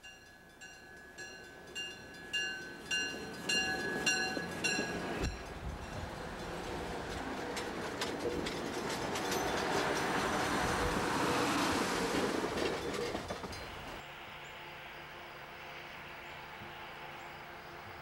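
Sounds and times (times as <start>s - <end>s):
train rolling past: 0.0s - 18.0s
wheel clicks over rail joints: 7.1s - 10.5s.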